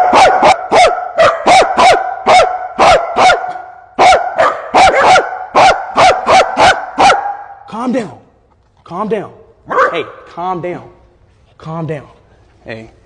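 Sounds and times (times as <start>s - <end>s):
dog barking rapidly: 0.0s - 7.6s, 9.7s - 10.2s.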